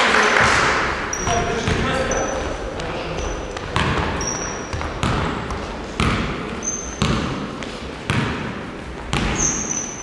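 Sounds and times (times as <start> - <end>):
basketball bouncing on gym floor: 0.4 - 10.0
short high squeaks: 4.2 - 4.7, 6.6 - 7.0, 9.4 - 10.0.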